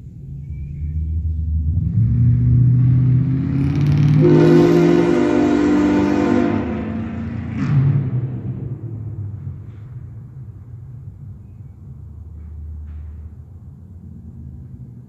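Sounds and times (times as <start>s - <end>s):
loud truck horn blast: 4.1s - 8.4s.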